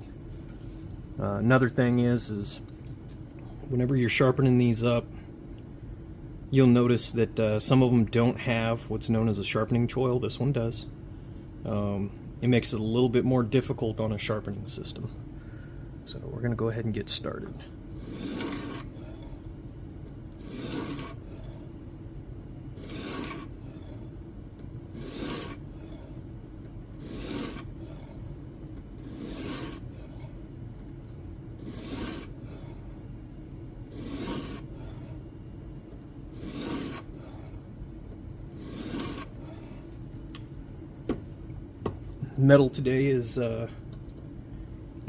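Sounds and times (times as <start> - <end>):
sharpening plate rasping on knife: 18.0 - 18.8, 20.4 - 21.2, 22.8 - 23.5, 25.0 - 25.6, 27.0 - 27.7, 29.0 - 29.9, 31.6 - 32.3, 33.9 - 34.7, 36.4 - 37.1, 38.6 - 39.3.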